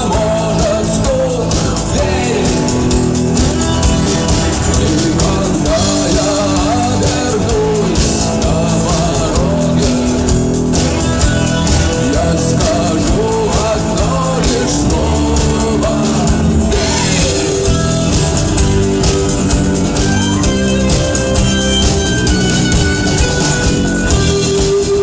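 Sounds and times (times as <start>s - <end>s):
person singing: 0.0s - 18.4s
bass guitar: 0.0s - 25.0s
drum kit: 0.0s - 25.0s
electric guitar: 0.0s - 25.0s.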